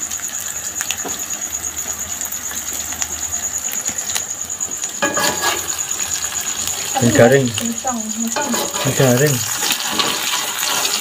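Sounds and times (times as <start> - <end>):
omelette sizzling in hot oil: 0.0 - 11.0
spatula scraping a wok: 4.8 - 7.0, 8.3 - 11.0.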